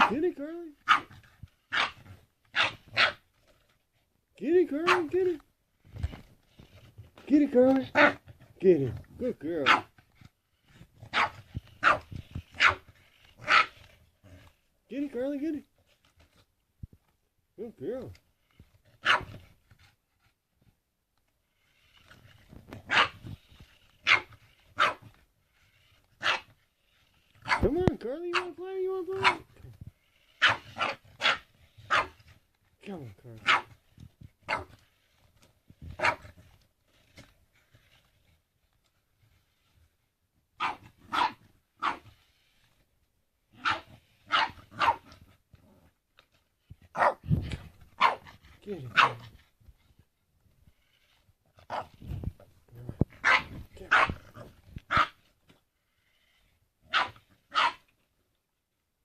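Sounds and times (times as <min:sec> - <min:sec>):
dog barking: 0:00.8 - 0:01.1, 0:01.7 - 0:02.0, 0:02.6 - 0:03.2, 0:11.1 - 0:12.0, 0:19.0 - 0:19.3, 0:22.9 - 0:23.2, 0:27.4 - 0:27.6, 0:29.2 - 0:29.4, 0:30.4 - 0:32.2, 0:33.4 - 0:33.7, 0:40.6 - 0:42.0, 0:43.6 - 0:45.0, 0:46.9 - 0:47.2, 0:48.0 - 0:48.3, 0:49.0 - 0:49.2, 0:53.2 - 0:54.2, 0:56.9 - 0:57.8.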